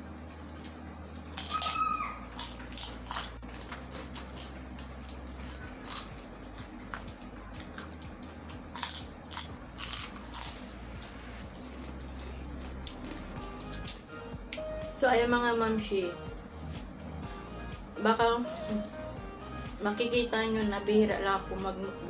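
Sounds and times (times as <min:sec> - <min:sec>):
crunchy chewing: 0:00.4 - 0:14.6.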